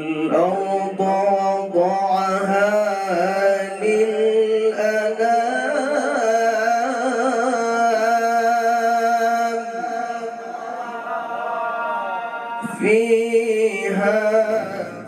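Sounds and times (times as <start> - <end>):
man chanting melodic recitation: 0.0 - 10.4, 12.6 - 15.0.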